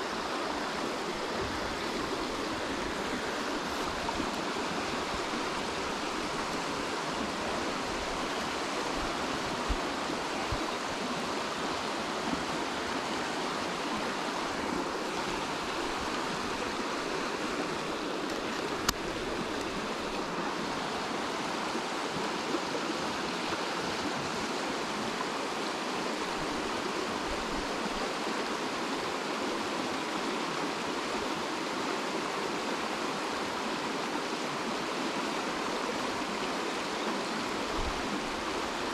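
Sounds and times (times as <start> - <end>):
water rushing: 0.0 - 38.9.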